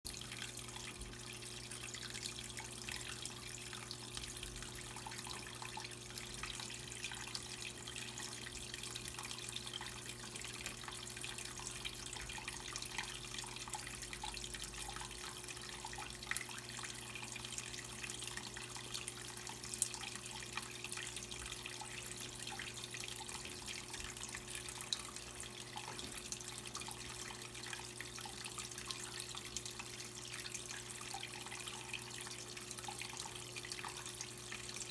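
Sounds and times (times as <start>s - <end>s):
faint steady hum: 0.1s - 34.9s.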